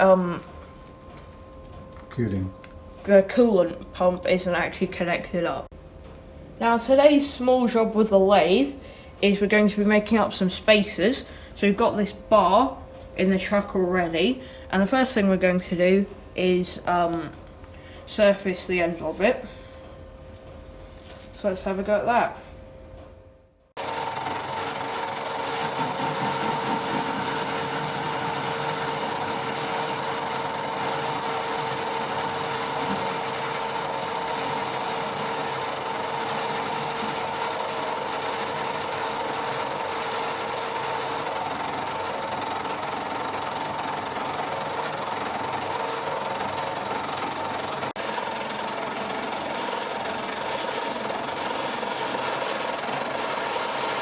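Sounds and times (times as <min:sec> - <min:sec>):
lathe motor and gearbox whine: 0:00.0 - 0:06.5, 0:23.8 - 0:54.0.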